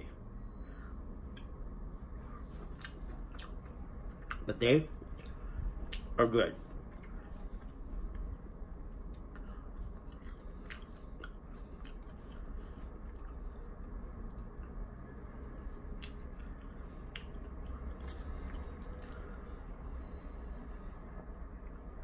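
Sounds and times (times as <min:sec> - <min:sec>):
chewing wet mouth sounds: 0:02.4 - 0:06.2, 0:09.0 - 0:19.7.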